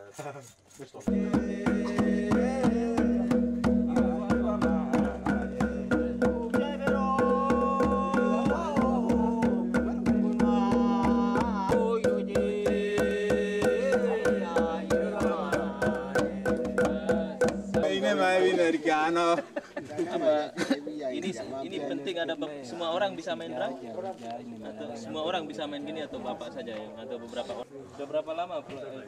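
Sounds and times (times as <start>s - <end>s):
wavering melody: 1.1s - 18.2s
drums beating steady rhythm: 1.1s - 18.5s.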